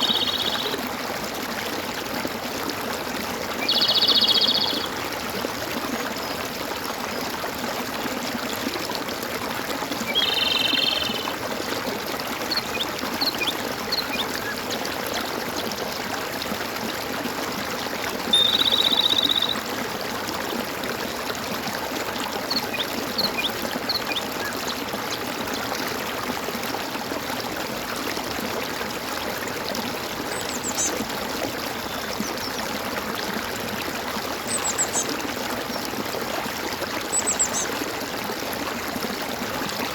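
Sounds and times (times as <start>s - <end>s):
loud trilled calls: 0.0s - 0.7s, 10.2s - 11.3s, 18.3s - 19.6s
water gurgling and trickling: 0.0s - 39.9s.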